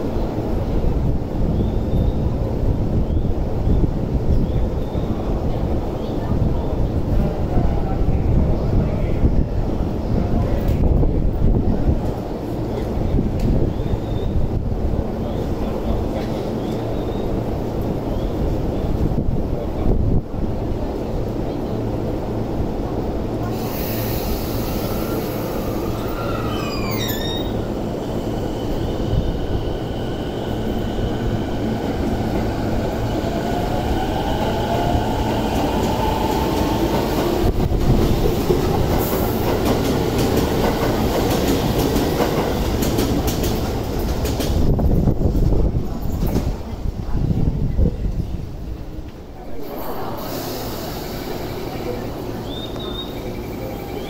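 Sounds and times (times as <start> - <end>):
train wheels rumbling and clattering: 0.0 - 54.0
brief falling squeal: 24.7 - 27.7.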